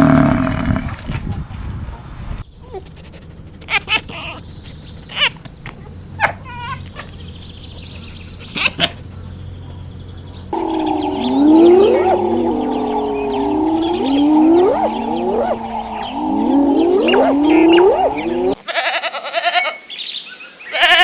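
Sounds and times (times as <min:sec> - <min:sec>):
animal call with wavering pitch: 0:10.6 - 0:18.6
low steady hum: 0:10.6 - 0:18.6
short bird chirps: 0:10.6 - 0:18.6.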